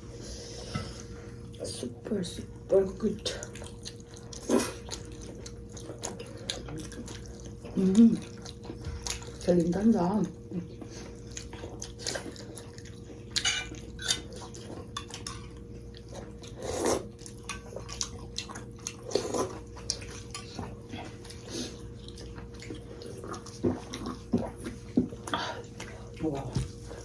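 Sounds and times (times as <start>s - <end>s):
faint steady hum: 0.0s - 27.0s
chewing food: 0.1s - 27.0s.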